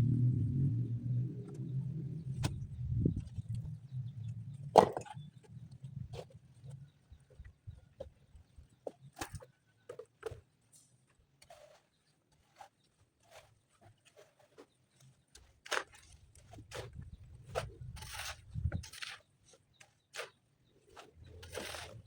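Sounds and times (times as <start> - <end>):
stones and tools knocking: 4.7 - 5.2.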